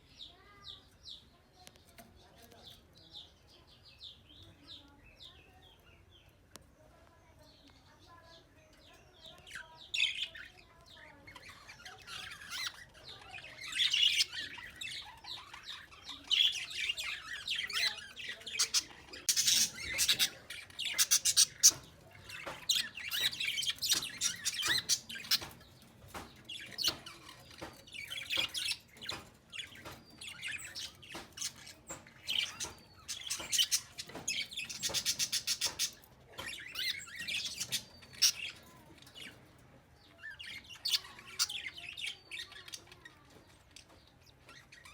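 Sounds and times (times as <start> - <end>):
birds chirping: 0.0 - 44.9
birds squawking: 11.2 - 39.5.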